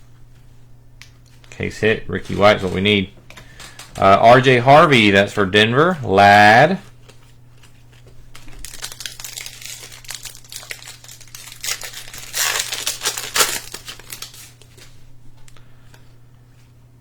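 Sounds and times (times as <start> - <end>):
plastic wrapper crinkling: 6.8 - 15.0.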